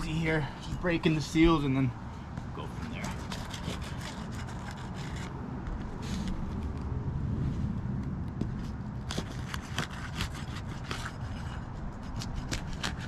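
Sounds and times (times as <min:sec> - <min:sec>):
low rumble: 0:04.8 - 0:09.1.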